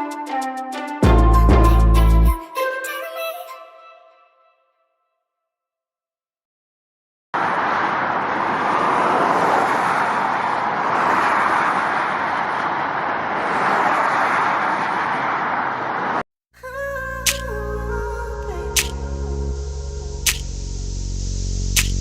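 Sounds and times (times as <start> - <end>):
road traffic noise: 7.4 - 16.2.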